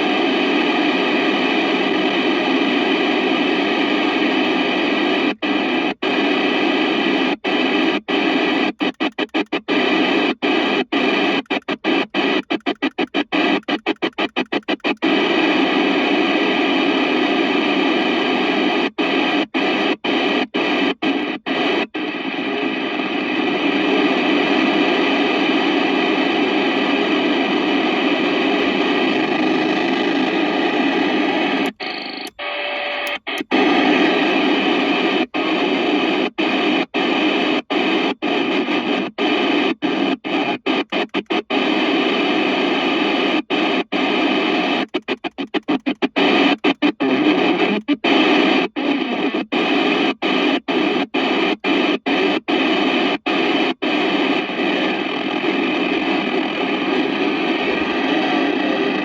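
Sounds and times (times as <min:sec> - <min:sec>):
radio static hiss: 0:00.0 - 0:59.0.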